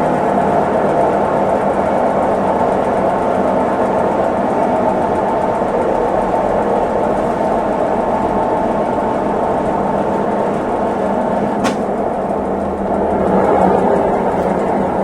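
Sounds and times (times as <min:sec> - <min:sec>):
washing machine running: 0:00.0 - 0:15.0
sharp click: 0:11.6 - 0:12.0.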